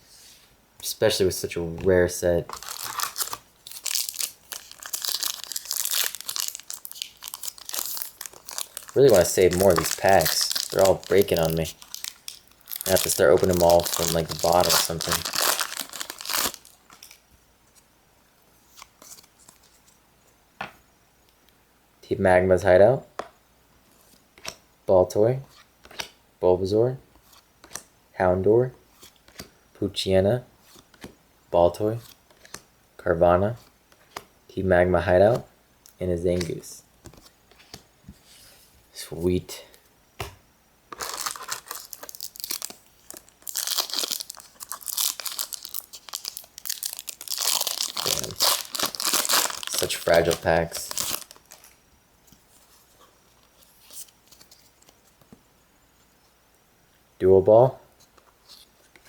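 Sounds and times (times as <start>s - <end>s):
cards rustling and clicking: 2.5s - 17.2s, 40.9s - 51.7s
foil wrapper crinkling and tearing: 2.5s - 17.2s, 41.0s - 51.8s.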